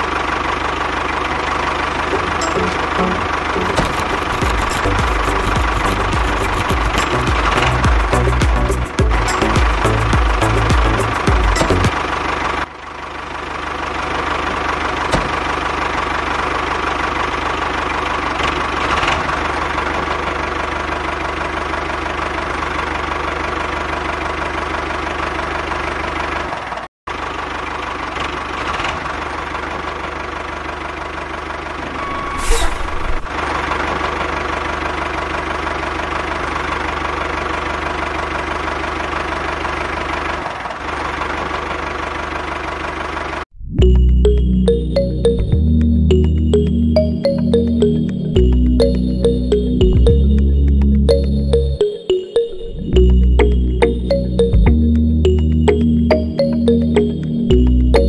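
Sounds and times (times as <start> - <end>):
motor running steadily: 0.0 - 12.6
short loud burst: 32.0 - 33.4.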